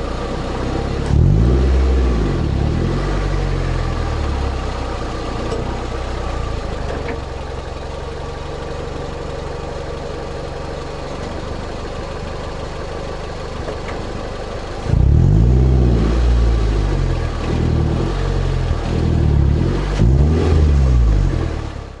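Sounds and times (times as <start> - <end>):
car engine revving: 0.0 - 5.7, 14.8 - 22.0.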